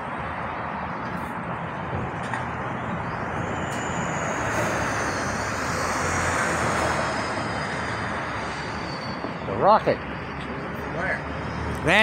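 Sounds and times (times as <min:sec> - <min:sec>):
passing vehicle engine rush: 0:01.1 - 0:12.0
faint high whine: 0:03.2 - 0:09.6.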